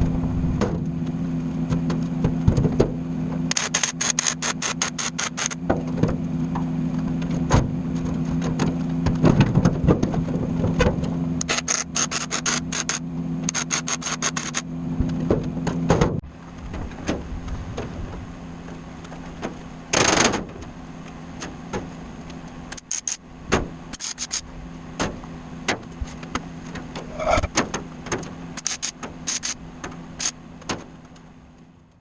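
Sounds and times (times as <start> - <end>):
steady low hum: 24.4 - 27.6.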